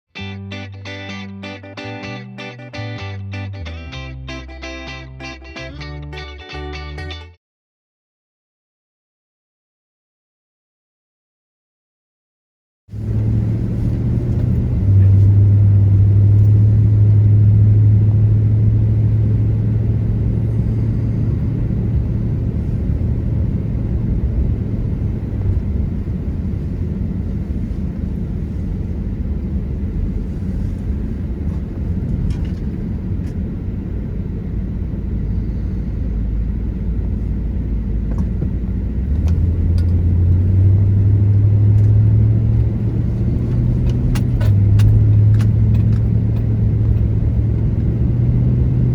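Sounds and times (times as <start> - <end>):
car engine droning: 12.9 - 48.9
tyre and road rumble: 13.0 - 48.9.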